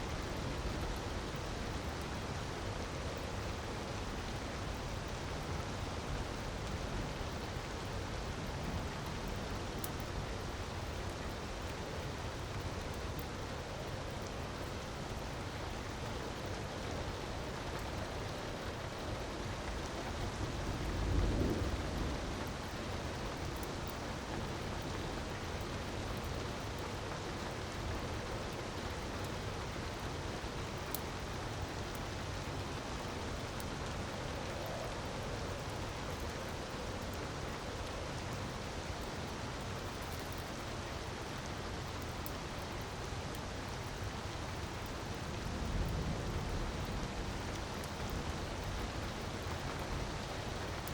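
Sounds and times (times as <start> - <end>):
fire crackles: 0.0 - 50.9
rushing rain-like water: 0.0 - 50.9
low rumble of thunder: 19.3 - 26.7, 45.1 - 50.7.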